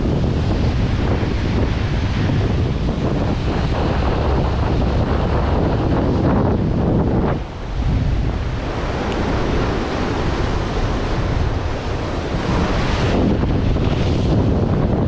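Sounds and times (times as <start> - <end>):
ocean surf on a beach: 0.0 - 15.0
wind buffeting microphone: 0.0 - 15.0.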